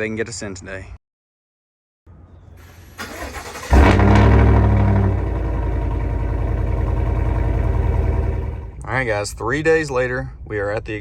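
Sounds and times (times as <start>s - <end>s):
truck engine starting and idling: 2.6s - 8.9s.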